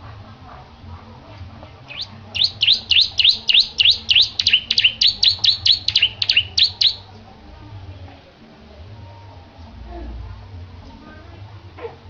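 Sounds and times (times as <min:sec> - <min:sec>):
bird singing sharp high notes: 0:01.9 - 0:07.1.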